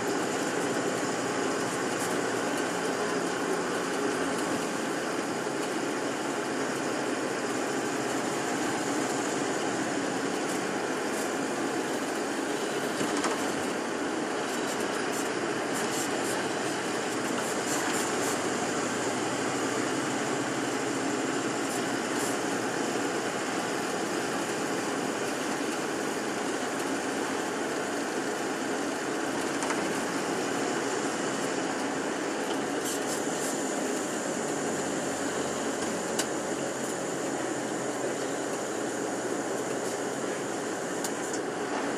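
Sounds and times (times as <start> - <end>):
bus engine and road noise: 0.0 - 41.9.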